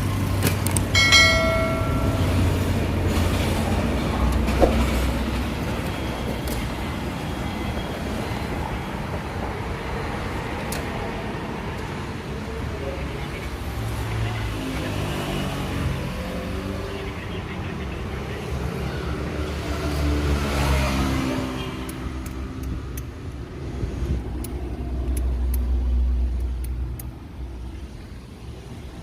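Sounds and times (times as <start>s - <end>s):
car engine rumble: 0.0s - 7.0s
sharp clicks: 21.8s - 23.1s.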